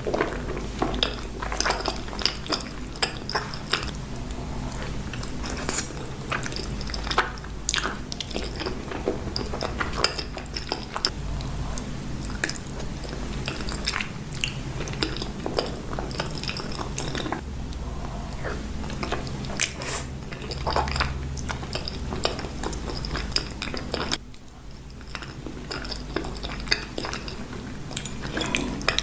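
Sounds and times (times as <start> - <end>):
steady low hum: 0.0 - 29.0
wet chewing mouth clicks: 0.1 - 24.2, 24.9 - 29.0.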